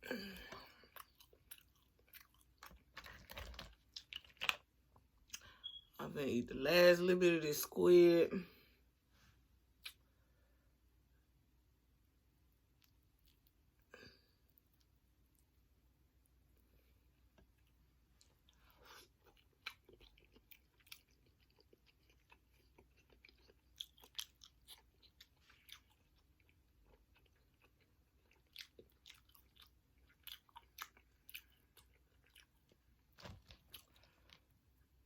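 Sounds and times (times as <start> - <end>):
chewing seafood: 0.2 - 5.5, 17.0 - 35.0.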